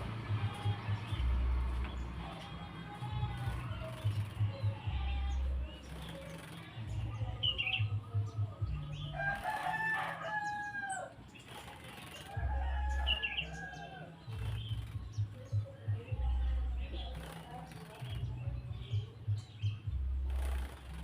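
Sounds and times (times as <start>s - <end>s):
bird flapping wings: 0.0s - 7.2s, 9.2s - 15.7s, 17.0s - 18.3s, 20.2s - 21.0s
bird chirps and calls: 0.0s - 21.0s.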